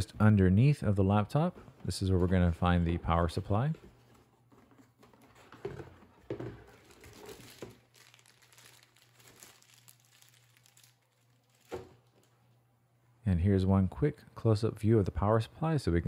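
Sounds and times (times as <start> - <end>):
plastic bag crinkling: 5.1 - 12.6.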